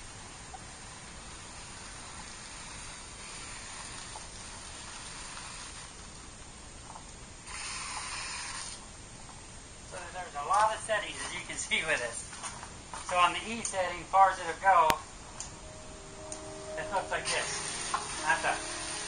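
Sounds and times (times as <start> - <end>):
hose nozzle spraying water: 17.3 - 19.0.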